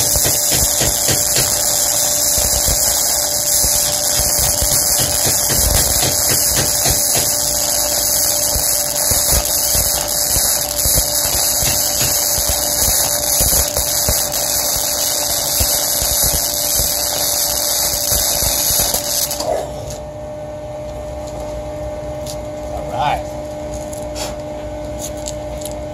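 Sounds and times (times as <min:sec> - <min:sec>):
welding arc crackling: 0:00.0 - 0:20.0
faint hum: 0:07.1 - 0:25.9.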